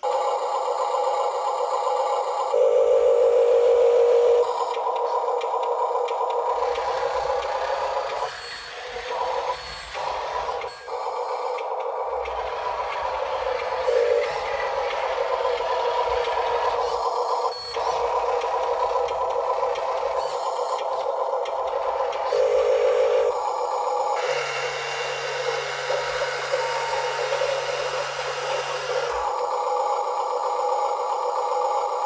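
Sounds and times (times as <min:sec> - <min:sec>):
small electric motor whirring: 0:06.4 - 0:29.5.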